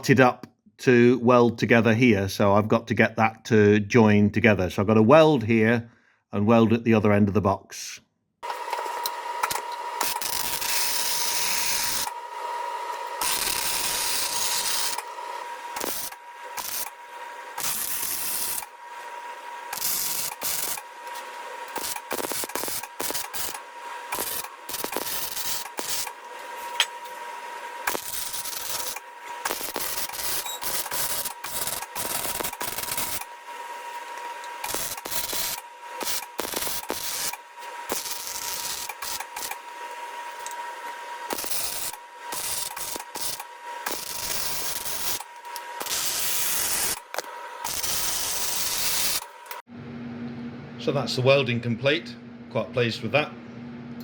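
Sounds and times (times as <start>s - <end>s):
welder crackling and sizzling: 8.4s - 49.7s.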